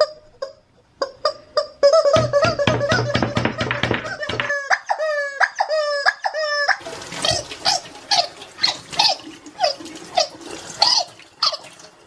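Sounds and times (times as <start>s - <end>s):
rubber chicken toy squeaking: 0.0s - 9.2s.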